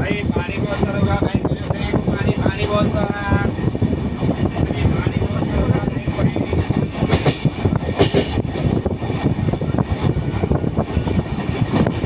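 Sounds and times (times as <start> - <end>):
train rumbling on track: 0.0 - 12.0
wheels rattling and clacking: 4.0 - 12.0.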